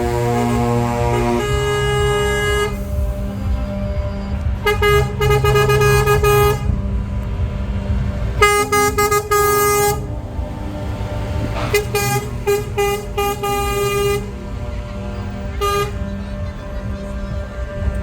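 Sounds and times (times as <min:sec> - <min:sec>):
diesel trucks rumbling past: 0:00.0 - 0:18.0
truck air horn toots: 0:00.0 - 0:18.0.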